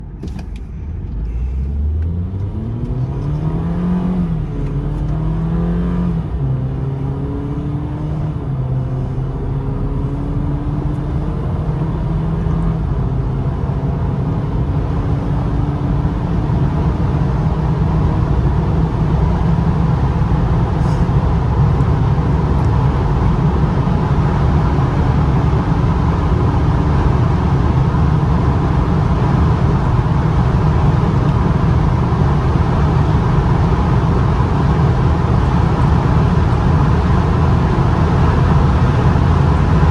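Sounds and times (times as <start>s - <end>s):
car engine accelerating hard: 0.0s - 39.9s
wind and tyre noise: 0.0s - 39.9s.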